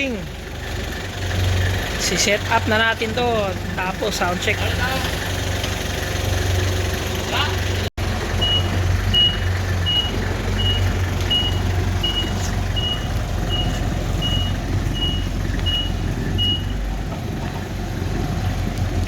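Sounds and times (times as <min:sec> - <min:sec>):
vehicle engine running: 0:00.0 - 0:19.0
reversing alarm beeping: 0:08.3 - 0:16.9.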